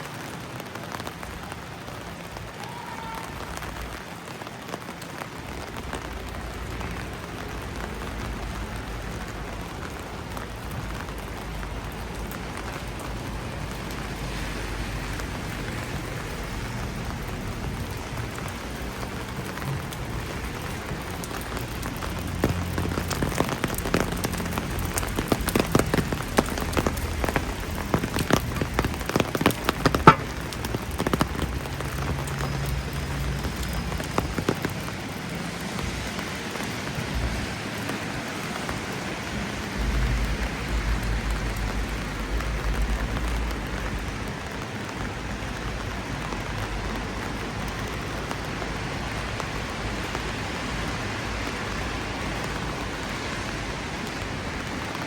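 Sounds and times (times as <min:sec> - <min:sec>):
steady rain falling: 0:00.0 - 0:55.0
sharp drop taps: 0:29.9 - 0:30.4.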